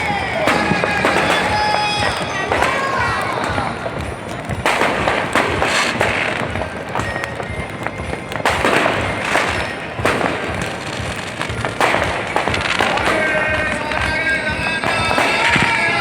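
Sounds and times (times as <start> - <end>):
fireworks bangs and crackling: 0.0 - 16.0
music playing: 0.0 - 16.0.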